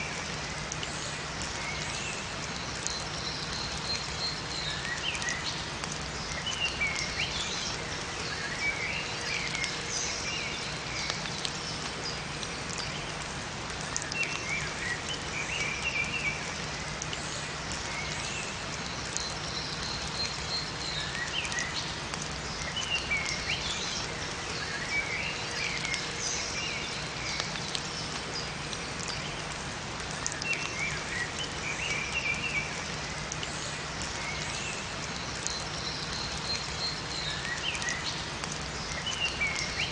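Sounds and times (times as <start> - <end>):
rain falling in forest: 0.0 - 39.9
songbirds chirping: 0.1 - 39.9.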